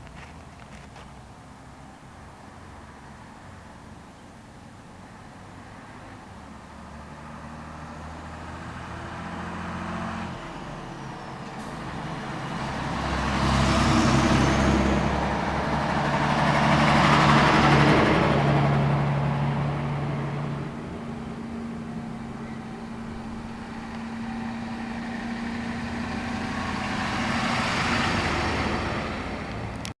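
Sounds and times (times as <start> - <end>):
fire engines driving past: 0.0 - 29.9.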